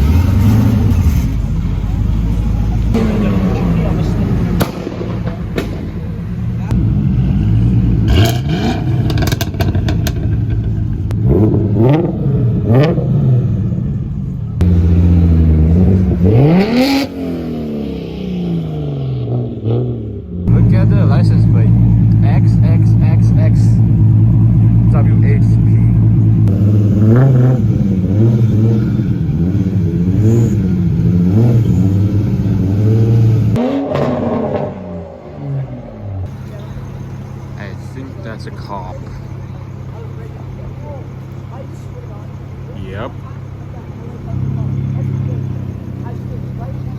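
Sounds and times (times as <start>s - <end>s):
sports car engine revving: 0.0s - 46.9s
exhaust pops and crackles: 0.9s - 7.0s, 8.0s - 12.0s.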